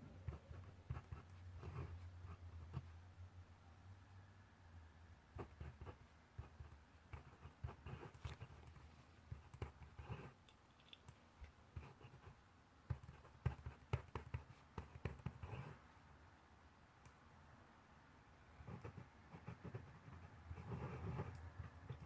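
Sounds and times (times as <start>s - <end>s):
pencil writing on paper: 0.2s - 2.8s, 5.4s - 10.4s, 11.7s - 15.8s, 18.6s - 22.0s.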